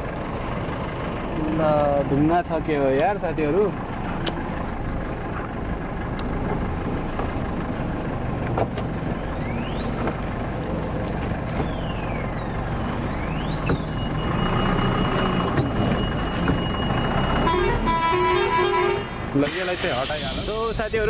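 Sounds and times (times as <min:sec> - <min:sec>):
truck engine and road rumble: 0:00.0 - 0:21.0.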